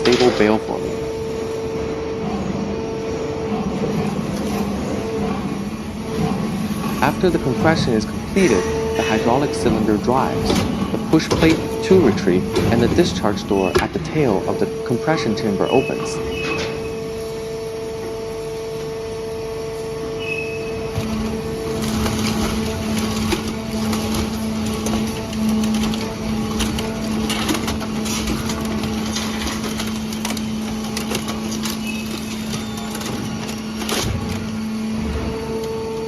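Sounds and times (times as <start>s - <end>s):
hydraulic power unit whine: 0.0s - 36.0s
low steady hum: 0.0s - 36.0s
metal knocking and scraping: 21.0s - 35.5s.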